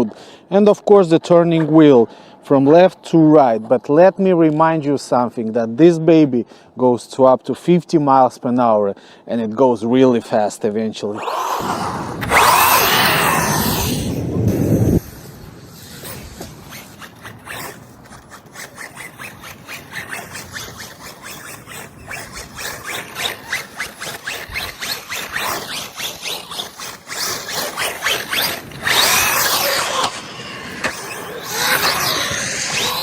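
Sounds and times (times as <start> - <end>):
rc truck motor whining: 11.1 - 33.0
drivetrain clicking and scraping: 15.9 - 33.0.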